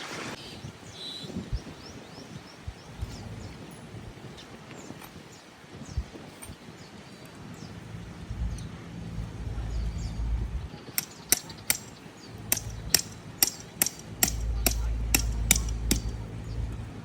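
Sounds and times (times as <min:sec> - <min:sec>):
low rumble: 0:07.8 - 0:10.8, 0:12.3 - 0:13.4, 0:14.0 - 0:17.0
hammer strikes: 0:11.0 - 0:16.4.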